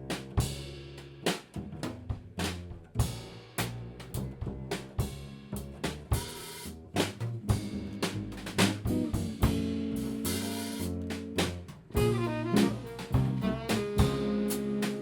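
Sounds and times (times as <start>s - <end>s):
bass drum and snare hits: 0.0s - 15.0s
live band music: 0.0s - 15.0s
held pitched notes: 11.9s - 15.0s.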